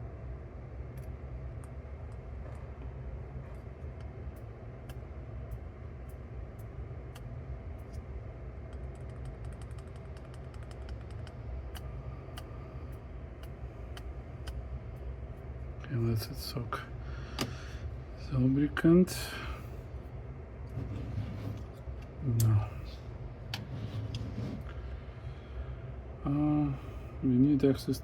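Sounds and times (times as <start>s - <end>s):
steady low hum: 0.0s - 28.0s
small mechanical clicks and ticks: 8.7s - 14.6s.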